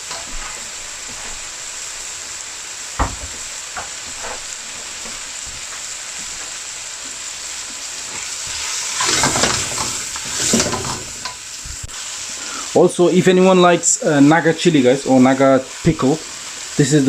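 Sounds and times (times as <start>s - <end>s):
sauce sizzling in a pan: 0.0s - 17.0s
stirring and scraping: 8.5s - 11.4s.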